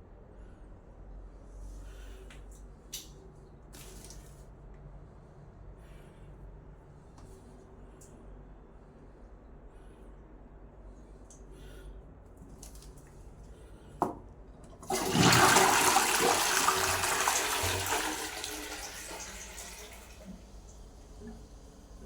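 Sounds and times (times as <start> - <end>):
toilet water rushing: 14.8 - 22.0.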